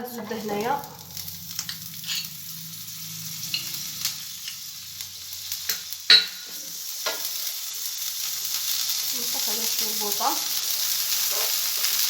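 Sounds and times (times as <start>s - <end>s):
butter sizzling in a frying pan: 0.0s - 12.0s
sharp knocks against a pan: 6.1s - 7.2s.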